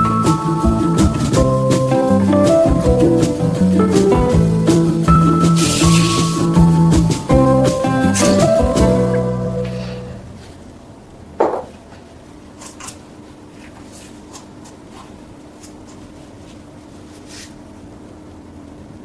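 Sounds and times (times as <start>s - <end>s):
background music: 0.0s - 10.4s.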